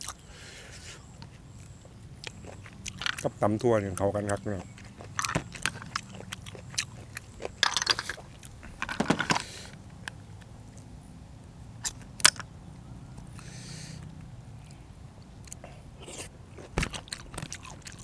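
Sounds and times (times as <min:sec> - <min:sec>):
chewing with sharp clicks: 0:00.0 - 0:00.2, 0:01.2 - 0:08.5, 0:13.2 - 0:18.0
crunchy bites: 0:00.0 - 0:10.9, 0:13.2 - 0:18.0.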